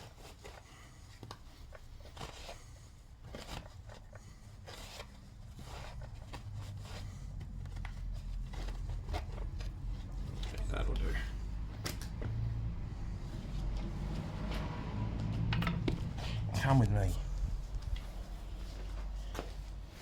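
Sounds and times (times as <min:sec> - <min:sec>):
parts clicking and rustling: 0:03.2 - 0:12.6, 0:13.3 - 0:16.5.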